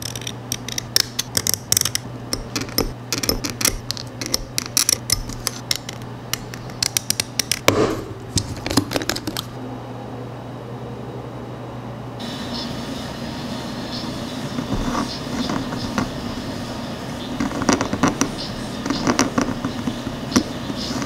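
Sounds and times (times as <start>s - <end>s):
steady low hum: 0.0s - 21.0s
knife scraping plastic: 17.3s - 21.0s.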